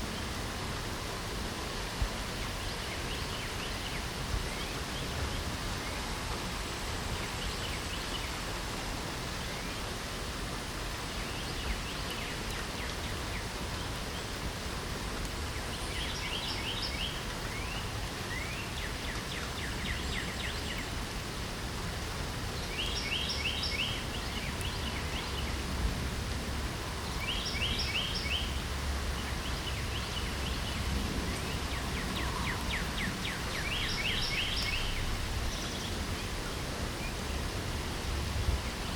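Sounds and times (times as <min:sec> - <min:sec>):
light rain hissing: 0:00.0 - 0:38.9
songbirds singing: 0:02.2 - 0:08.5, 0:10.9 - 0:14.4, 0:15.3 - 0:21.0, 0:22.2 - 0:38.9.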